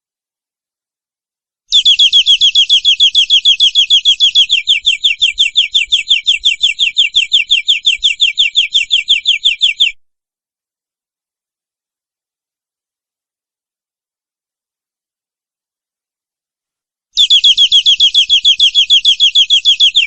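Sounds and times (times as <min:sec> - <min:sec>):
canary singing rapid trill: 0:01.7 - 0:10.0, 0:17.2 - 0:20.0.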